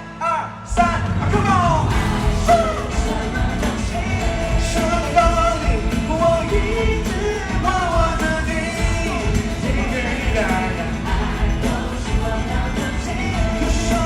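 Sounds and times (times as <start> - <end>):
person singing: 0.0 - 14.0
pop-rock band playing: 0.0 - 14.0.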